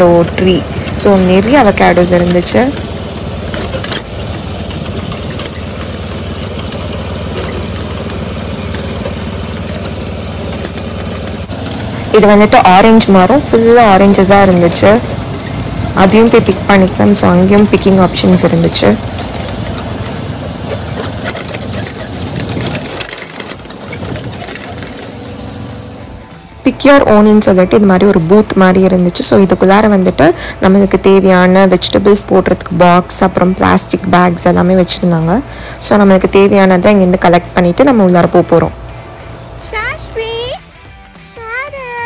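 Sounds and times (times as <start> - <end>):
tractor engine running: 0.0 - 42.0
small rattles and clicks: 0.2 - 11.8, 16.4 - 25.7.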